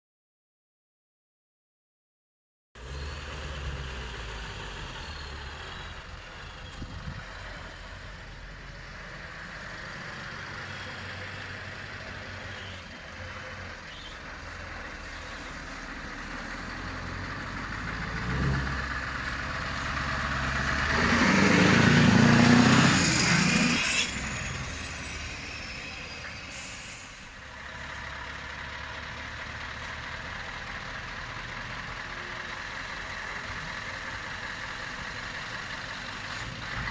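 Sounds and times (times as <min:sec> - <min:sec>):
truck engine idling: 0:02.8 - 0:18.2, 0:24.1 - 0:36.9.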